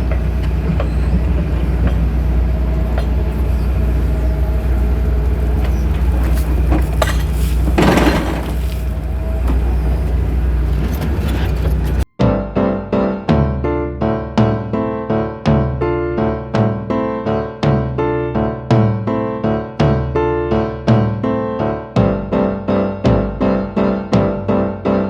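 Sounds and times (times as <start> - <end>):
excavator diesel engine running: 0.0 - 12.1
metallic rattle: 0.0 - 12.1.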